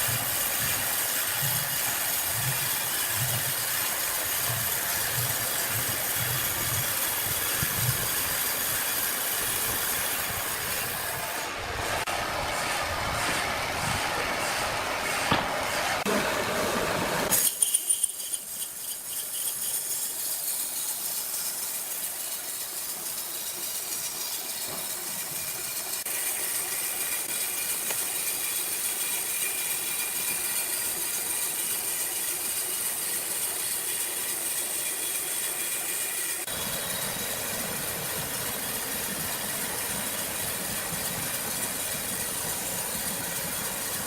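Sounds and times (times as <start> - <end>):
sawmill machinery hissing: 0.0 - 44.0
sharp knocks: 15.2 - 15.6.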